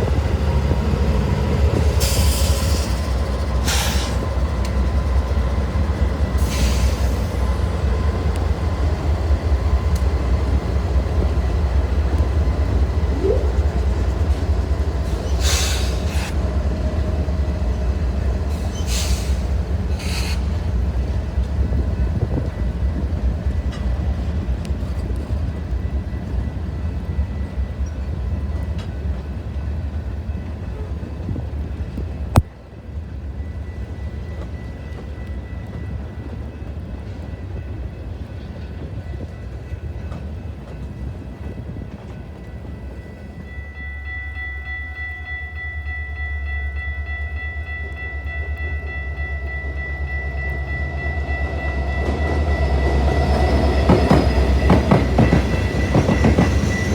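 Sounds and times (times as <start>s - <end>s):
train rumbling past: 0.0s - 56.9s.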